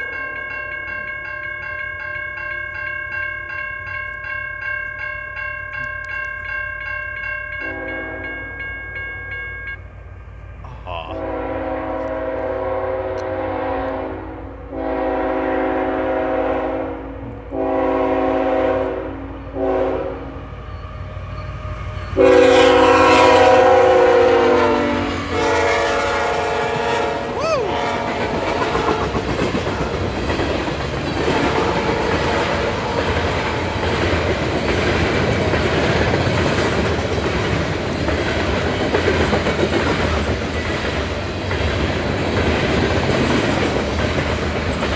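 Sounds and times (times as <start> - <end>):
locomotive air horn blasts: 7.6 - 8.4, 11.1 - 20.4, 22.2 - 29.1
train rumble: 9.8 - 44.9.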